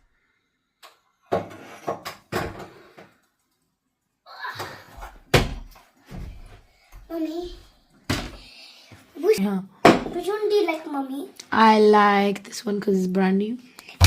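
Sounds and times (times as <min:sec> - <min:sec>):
household knocks and thumps: 0:01.3 - 0:03.1, 0:04.6 - 0:08.5, 0:09.8 - 0:10.3.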